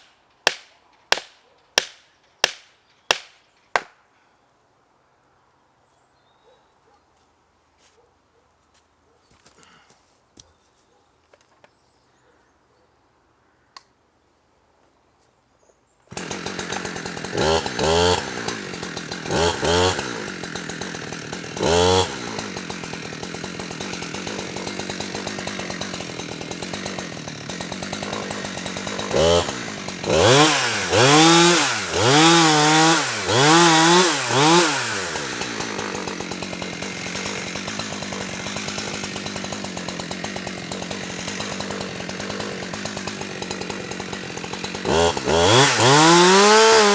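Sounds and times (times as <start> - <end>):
chainsaw idling and revving: 16.1 - 46.9.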